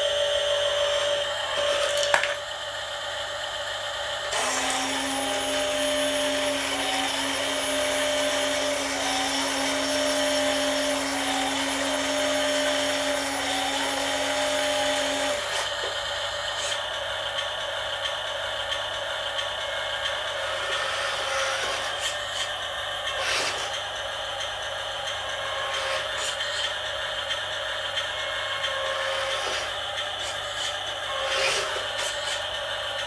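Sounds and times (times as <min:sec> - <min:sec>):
small electric motors whirring: 0:04.3 - 0:16.9, 0:20.3 - 0:24.0, 0:25.1 - 0:26.9, 0:27.9 - 0:33.0.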